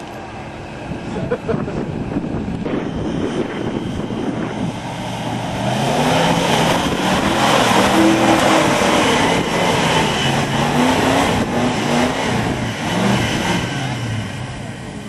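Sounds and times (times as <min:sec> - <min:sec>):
vehicle engine revving: 0:01.7 - 0:15.0.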